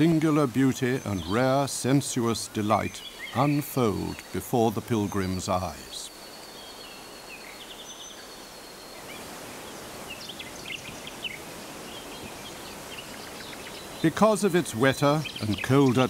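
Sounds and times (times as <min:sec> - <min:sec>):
background hiss: 0:00.0 - 0:16.0
faint bird chirps: 0:00.0 - 0:16.0.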